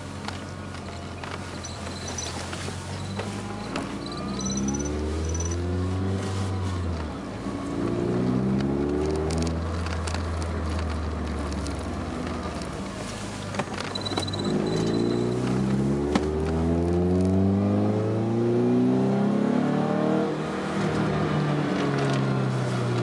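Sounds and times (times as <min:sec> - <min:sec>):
car engine accelerating: 0:00.0 - 0:13.4, 0:14.0 - 0:23.0.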